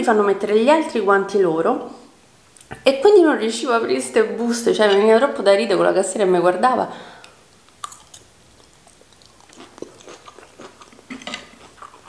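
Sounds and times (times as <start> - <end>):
person chewing green beans: 7.2 - 12.0.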